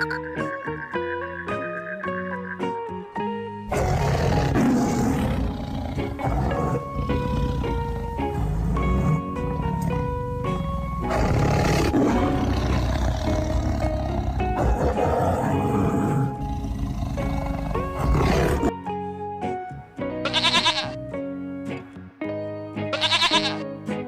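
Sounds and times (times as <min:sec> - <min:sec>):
background music: 0:00.0 - 0:24.0
big cat roaring: 0:03.7 - 0:18.7.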